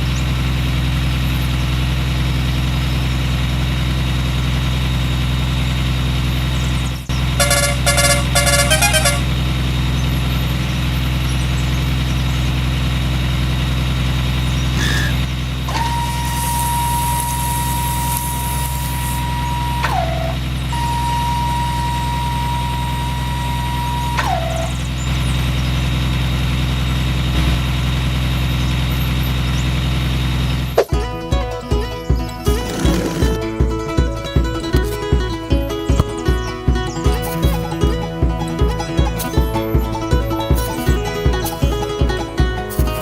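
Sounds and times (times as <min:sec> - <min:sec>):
heavy vehicle engine idling: 0:00.0 - 0:43.0
long steady tones: 0:07.1 - 0:09.4, 0:15.7 - 0:25.1
plucked rhythmic music: 0:07.4 - 0:09.3, 0:30.8 - 0:43.0.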